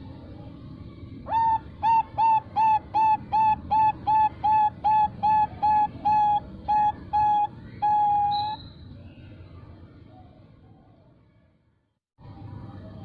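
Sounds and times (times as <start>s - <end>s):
dove cooing: 1.3s - 8.6s.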